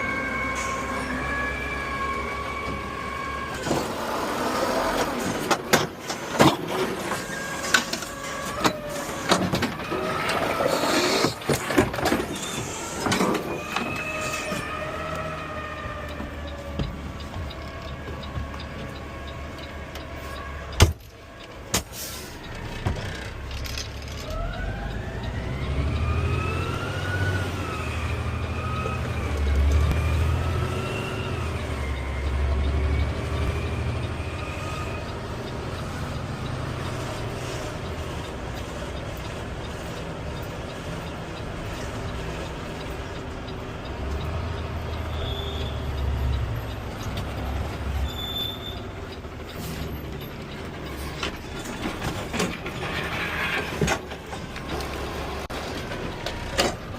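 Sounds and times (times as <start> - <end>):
truck engine low rumble: 0.0 - 56.9.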